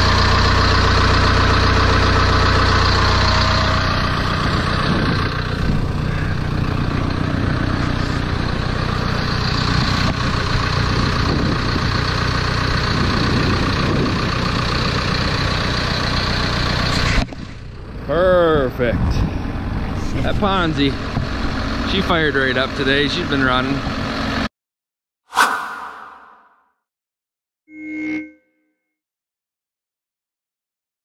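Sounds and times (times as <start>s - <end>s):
diesel engine idling: 0.0s - 24.4s.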